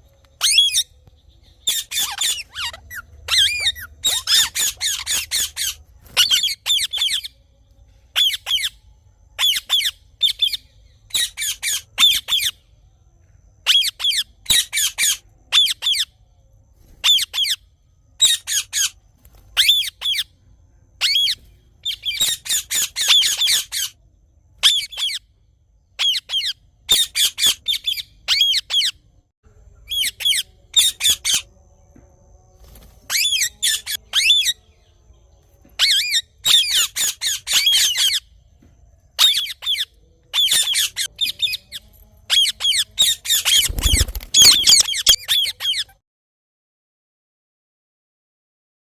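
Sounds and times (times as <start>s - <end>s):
parakeet calling: 0.4s - 0.9s, 1.6s - 7.3s, 8.2s - 8.8s, 9.4s - 12.5s, 21.0s - 23.9s, 24.6s - 25.2s, 35.8s - 38.3s, 39.2s - 46.0s.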